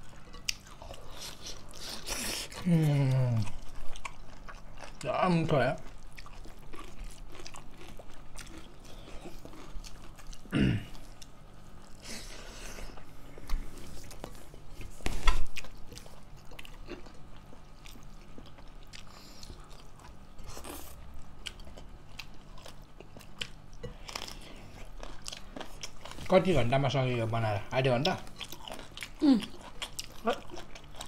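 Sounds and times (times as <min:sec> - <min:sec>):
chewing and biting food: 0:00.0 - 0:12.0, 0:12.9 - 0:27.1, 0:27.9 - 0:31.0.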